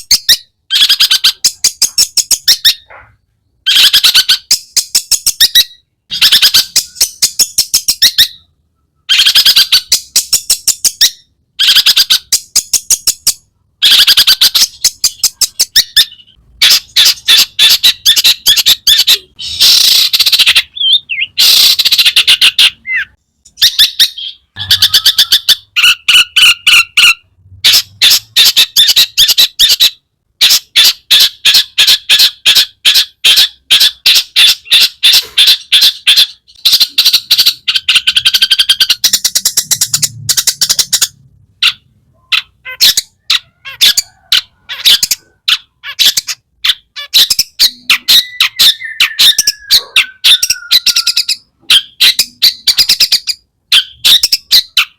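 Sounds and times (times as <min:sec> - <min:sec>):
bird harsh chattering song: 0:00.0 - 0:54.9
bird whistled notes: 0:36.7 - 0:41.1, 0:47.6 - 0:53.2.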